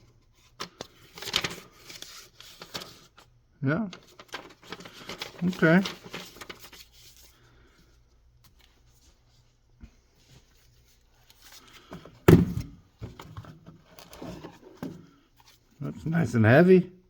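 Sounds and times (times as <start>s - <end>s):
loud thunk: 12.3s - 12.8s.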